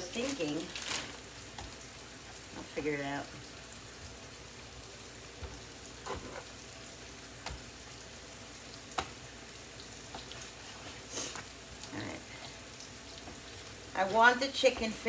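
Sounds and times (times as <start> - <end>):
mushrooms sizzling in a frying pan: 0.0 - 15.0.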